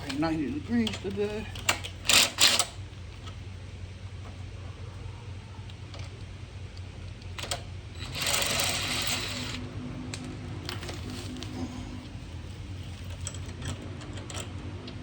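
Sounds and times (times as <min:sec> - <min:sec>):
hand tools clicking and clanking: 0:00.0 - 0:03.4
steady low hum: 0:00.0 - 0:15.0.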